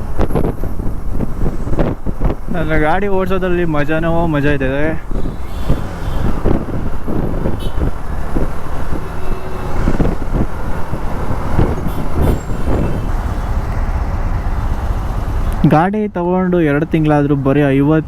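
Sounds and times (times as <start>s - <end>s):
motorcycle engine running: 0.0s - 15.6s
road and wind noise: 0.0s - 18.0s
surrounding traffic: 0.0s - 18.0s.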